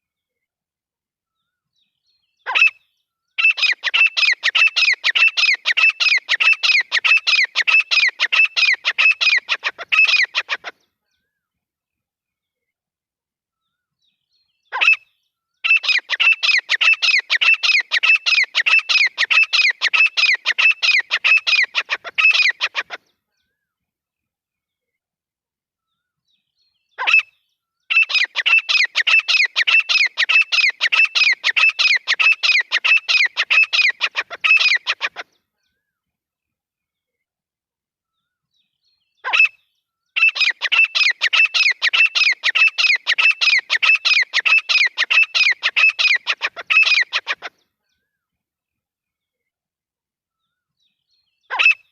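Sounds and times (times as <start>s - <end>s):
francolin calling: 3.4s - 10.7s, 27.9s - 35.2s, 40.2s - 47.5s.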